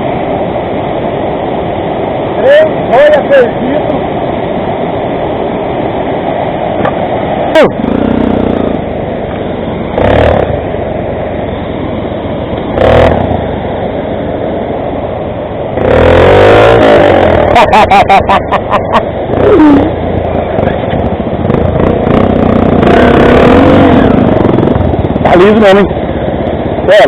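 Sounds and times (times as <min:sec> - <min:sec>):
motorcycle engine revving: 0:07.5 - 0:14.4, 0:15.1 - 0:26.9.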